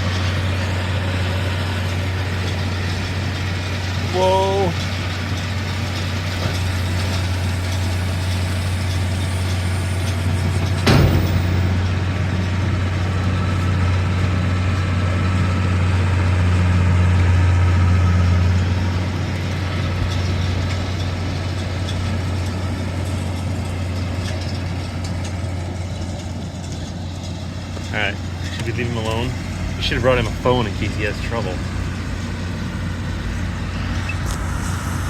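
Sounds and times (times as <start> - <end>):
vehicle engine idling: 0.0 - 35.0
sharp knock: 10.8 - 11.8.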